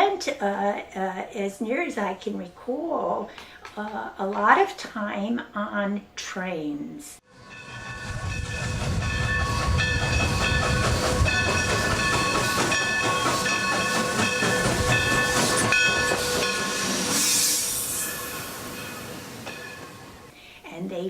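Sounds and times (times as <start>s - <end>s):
steam train rumble: 7.3s - 20.4s
steam hissing: 7.4s - 20.4s.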